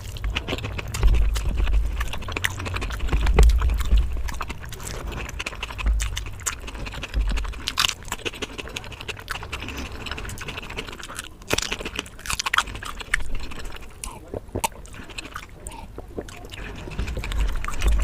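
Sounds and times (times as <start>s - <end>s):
dull low thumps: 0.0s - 8.2s
person chewing food: 0.0s - 18.0s.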